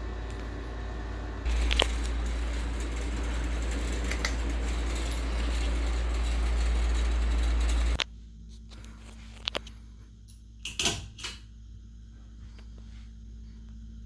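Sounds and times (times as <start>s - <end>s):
ceiling fan air rumbling: 0.0s - 8.0s.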